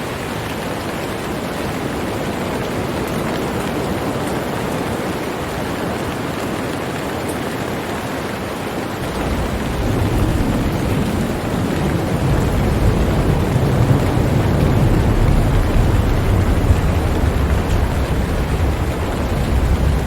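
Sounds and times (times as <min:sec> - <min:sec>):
heavy rain: 0:00.0 - 0:20.0
low rumble of thunder: 0:09.0 - 0:20.0.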